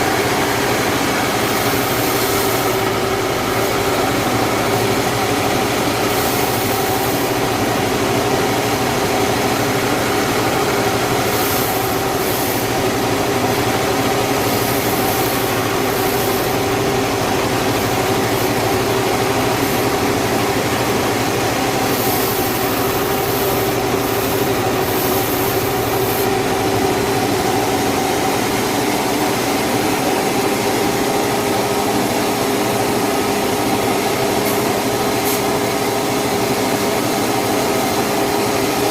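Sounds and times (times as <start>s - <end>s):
saw machinery humming: 0.0s - 38.9s
high hiss: 0.1s - 20.3s, 21.5s - 28.3s.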